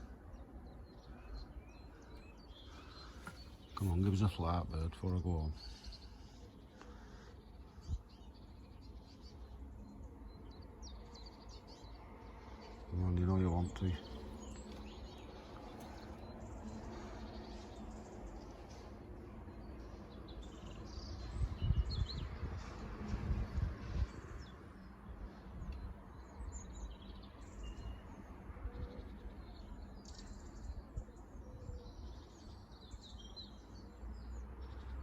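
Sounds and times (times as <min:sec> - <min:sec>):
small birds chirping: 0:00.0 - 0:35.0
wind buffeting microphone: 0:20.9 - 0:24.9.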